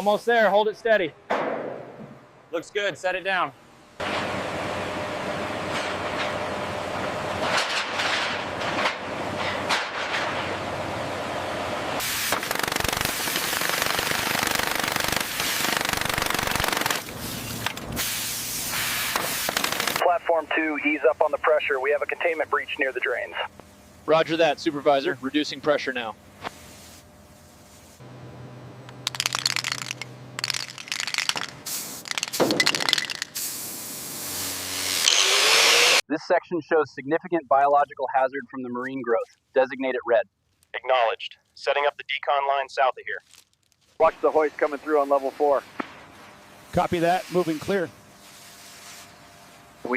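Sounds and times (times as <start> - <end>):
high-pressure water blasting steel: 12.0 - 20.0, 33.3 - 36.0
pneumatic hammer hammering: 12.0 - 20.0.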